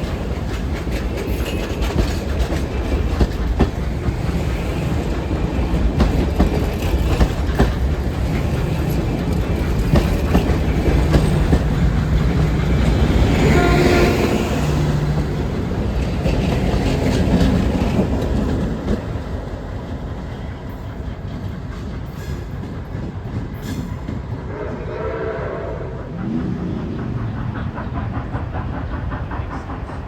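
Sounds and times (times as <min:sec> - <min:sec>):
train cars clattering over rail joints: 0:00.0 - 0:24.5
locomotive horn blast: 0:13.2 - 0:15.2, 0:24.5 - 0:26.0.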